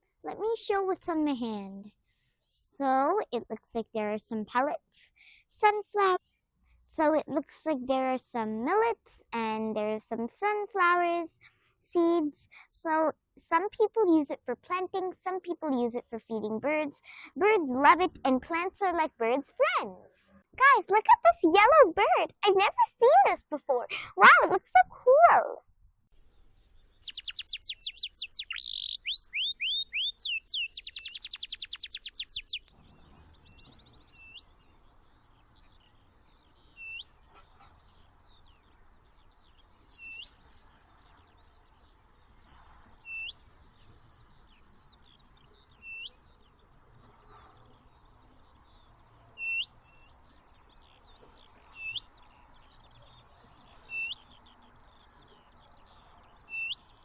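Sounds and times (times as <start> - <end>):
faint outdoor background: 0.0 - 57.0
songbirds whistling and chirping: 26.9 - 57.0.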